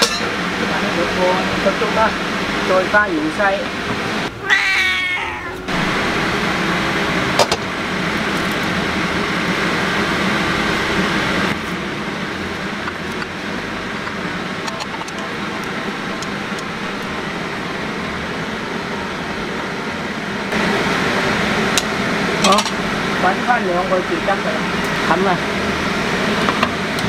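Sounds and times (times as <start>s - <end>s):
rushing kitchen noise: 0.0s - 27.0s
cat meowing: 4.3s - 5.8s.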